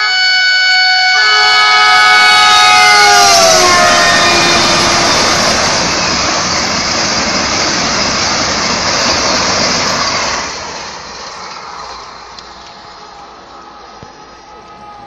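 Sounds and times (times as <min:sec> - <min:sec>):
train horn falling in pitch: 0:00.0 - 0:05.5
train rushing past: 0:01.0 - 0:15.0.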